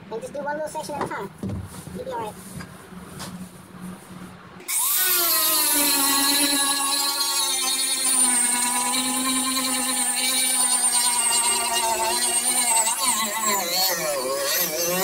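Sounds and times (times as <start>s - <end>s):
power sander whine: 4.6s - 15.0s.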